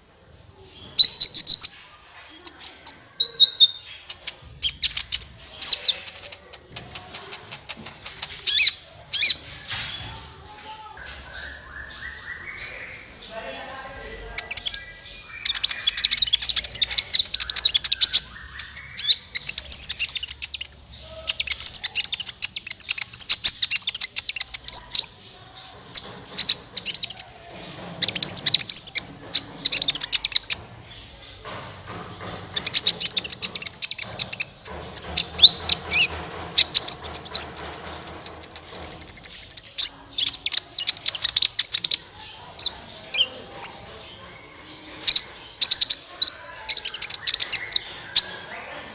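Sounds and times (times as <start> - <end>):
sunbird chirping and trilling: 0.6 - 9.4, 10.9 - 25.3, 32.6 - 44.0.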